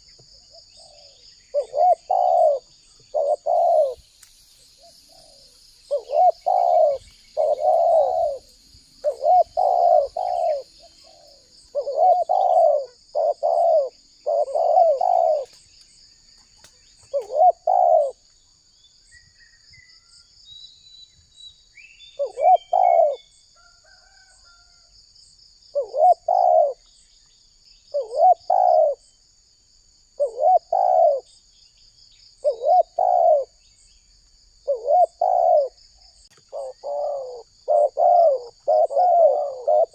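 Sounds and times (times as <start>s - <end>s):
dove cooing: 0.0s - 4.0s, 4.8s - 15.6s, 17.1s - 18.2s, 22.2s - 23.3s, 25.7s - 26.8s, 27.9s - 29.0s, 30.2s - 31.3s, 32.4s - 33.6s, 34.6s - 35.8s, 36.4s - 39.9s
small bird chirps: 0.0s - 24.6s.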